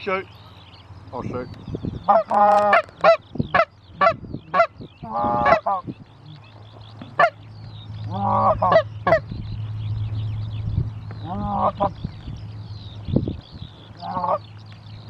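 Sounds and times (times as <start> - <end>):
geese clucking: 2.0 - 9.4, 11.1 - 12.4, 13.0 - 14.8
geese honking: 2.0 - 9.4, 11.1 - 12.3, 13.3 - 14.6.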